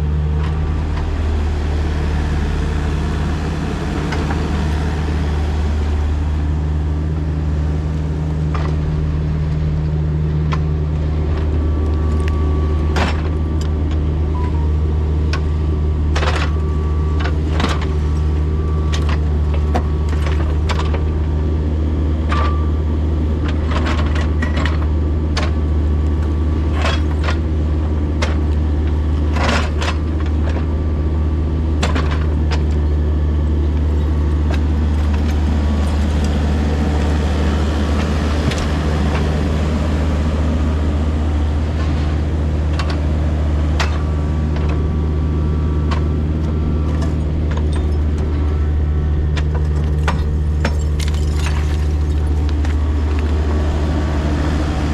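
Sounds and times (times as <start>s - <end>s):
diesel engine running under load: 0.0s - 54.9s
steel clanking against concrete: 49.7s - 52.7s.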